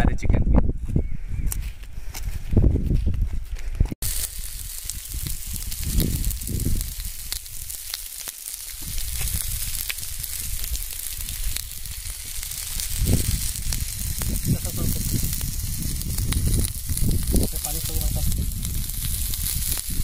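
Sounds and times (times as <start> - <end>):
chicken sizzling with pops: 4.0 - 20.0.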